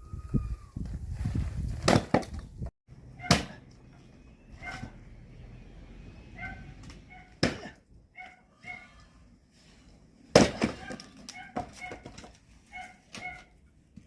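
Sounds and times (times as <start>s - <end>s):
axe splitting firewood: 3.2s - 3.7s, 6.8s - 7.8s, 10.2s - 12.4s.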